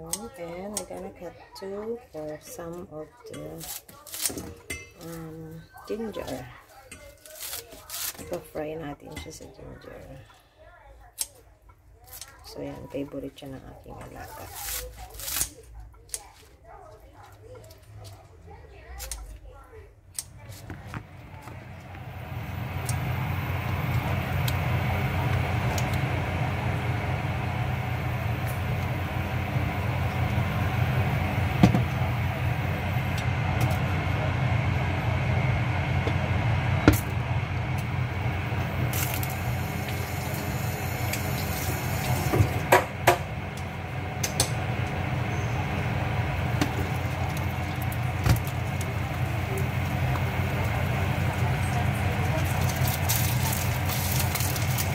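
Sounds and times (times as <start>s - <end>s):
ginger sizzling in oil: 21.3s - 54.9s.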